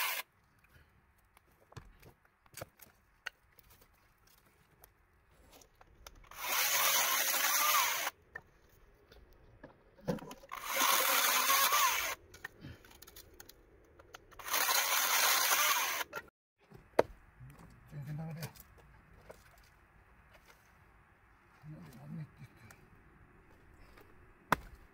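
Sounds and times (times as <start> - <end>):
electric saw cutting wood: 0.0 - 0.2, 6.3 - 8.2, 10.5 - 12.2, 14.4 - 16.3.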